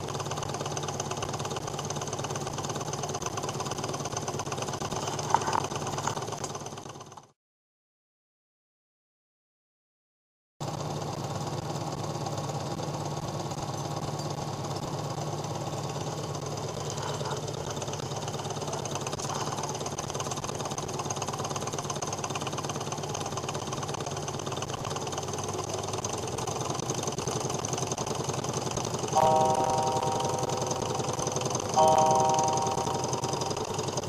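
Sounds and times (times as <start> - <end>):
stirling engine clattering: 0.0 - 7.3, 10.6 - 34.0
low hum: 29.0 - 34.0.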